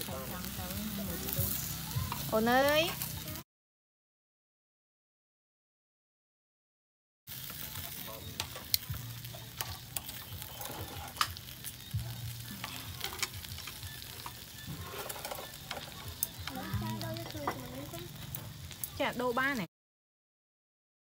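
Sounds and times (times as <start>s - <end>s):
food sizzling in a pan: 0.0s - 3.4s, 7.3s - 19.7s
sharp crackles and clicks: 0.0s - 3.4s, 7.3s - 19.7s.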